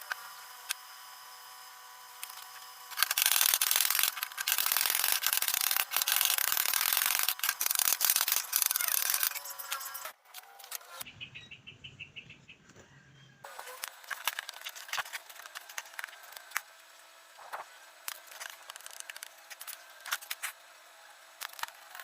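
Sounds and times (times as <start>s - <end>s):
power grinder grinding metal: 0.0s - 11.0s.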